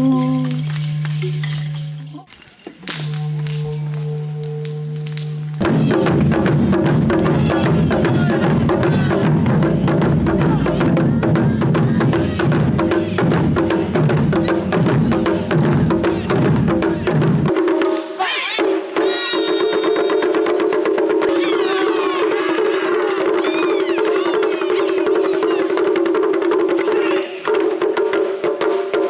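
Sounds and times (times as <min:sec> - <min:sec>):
gliding wavering melody: 0:00.0 - 0:07.1
steady held tone: 0:00.0 - 0:07.8
drums played fast: 0:03.0 - 0:29.0.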